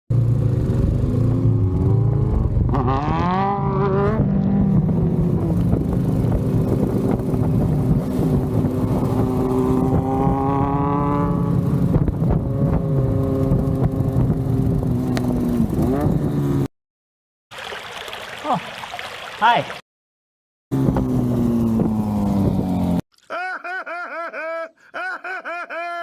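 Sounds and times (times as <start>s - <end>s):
motorcycle engine revving: 0.1s - 16.7s, 20.7s - 23.0s
wind noise: 4.2s - 16.4s.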